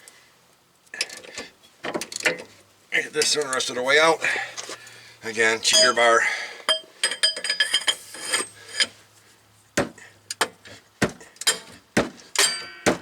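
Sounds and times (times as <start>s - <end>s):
metal tools clinking: 5.6s - 9.0s, 11.4s - 11.8s, 12.4s - 12.9s
sharp metal knocks: 9.8s - 13.0s.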